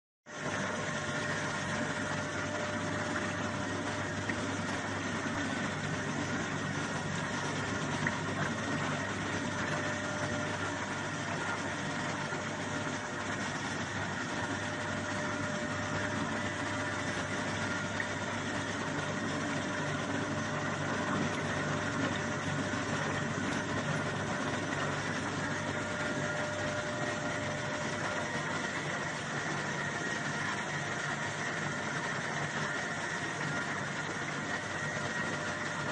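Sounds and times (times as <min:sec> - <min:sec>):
washing machine humming: 0:00.3 - 0:35.9.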